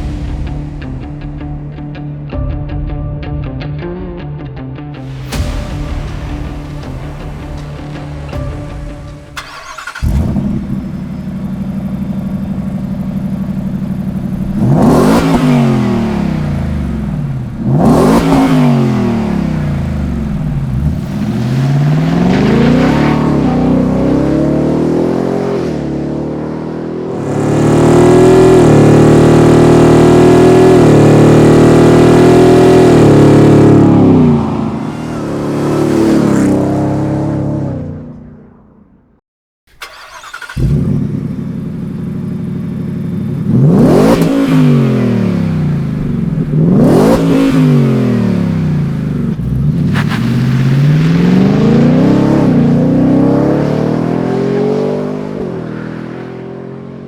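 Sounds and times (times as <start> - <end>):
engine revving: 5.0 - 38.5, 39.8 - 57.0
truck engine at high rpm: 6.3 - 38.6, 39.7 - 57.0.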